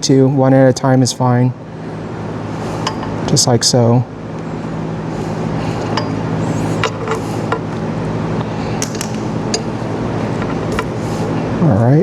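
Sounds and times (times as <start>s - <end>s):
steady low hum: 0.0s - 12.0s
metal parts clicking and clinking: 5.8s - 7.8s, 8.7s - 11.2s.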